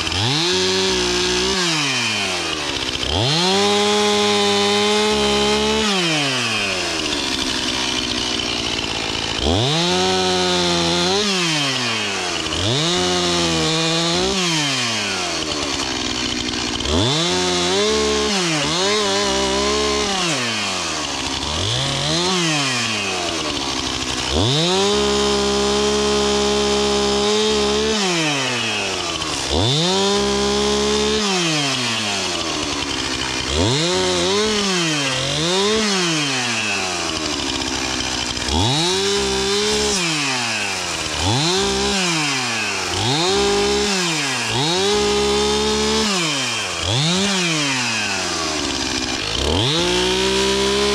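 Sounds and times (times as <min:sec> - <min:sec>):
chainsaw revving cutting wood: 0:00.0 - 0:50.9.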